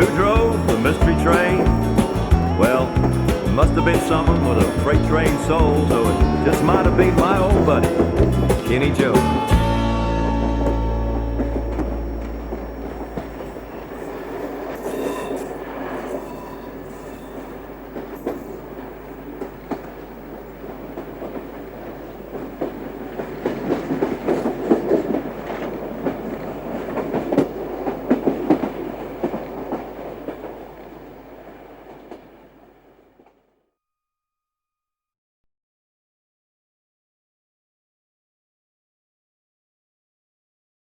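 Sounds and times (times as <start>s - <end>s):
song note: 0.0s - 13.8s
train running along track: 0.0s - 33.4s.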